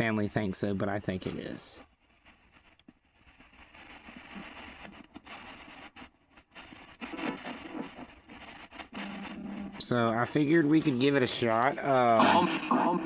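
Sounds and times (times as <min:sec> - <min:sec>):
radio fragments: 0:00.0 - 0:01.8, 0:03.9 - 0:13.0
radio static sweeping stations: 0:03.7 - 0:13.0.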